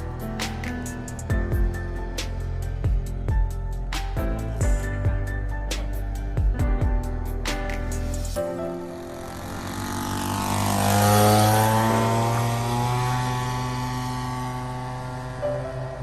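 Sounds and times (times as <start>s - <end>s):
model plane engine flying past: 8.7s - 16.0s.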